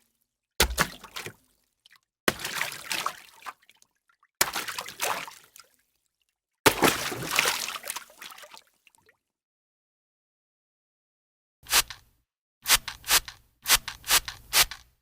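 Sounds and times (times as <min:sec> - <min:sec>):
water sloshing: 0:00.6 - 0:03.8, 0:04.4 - 0:05.8, 0:06.7 - 0:09.0.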